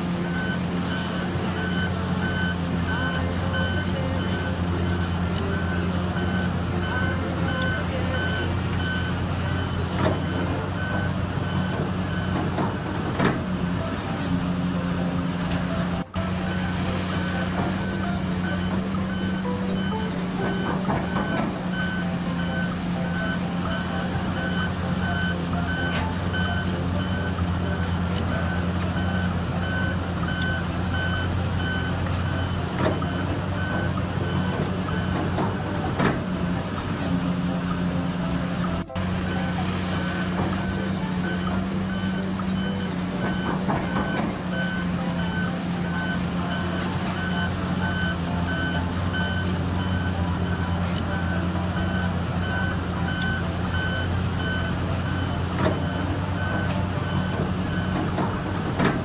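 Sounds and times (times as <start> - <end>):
backup alarm beeping: 0.0 - 59.0
heavy diesel machinery running: 0.0 - 59.0.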